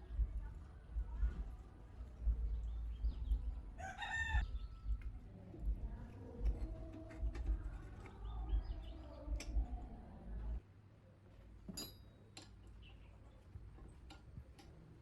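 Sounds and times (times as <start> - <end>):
low rumble: 0.0 - 10.6
light clinks: 11.7 - 12.7.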